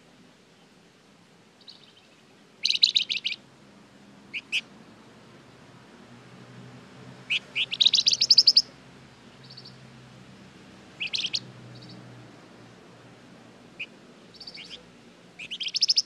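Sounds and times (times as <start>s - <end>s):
songbird chirping and trilling: 1.6s - 3.5s, 4.2s - 5.7s, 7.2s - 9.9s, 10.9s - 12.1s, 13.7s - 16.0s.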